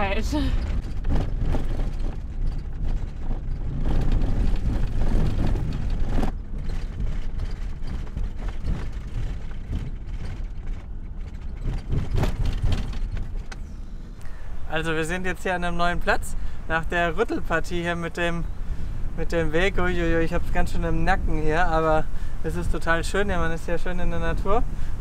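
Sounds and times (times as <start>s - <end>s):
knocks and rattles: 0.0s - 13.9s
van engine and tyre rumble: 0.0s - 25.0s.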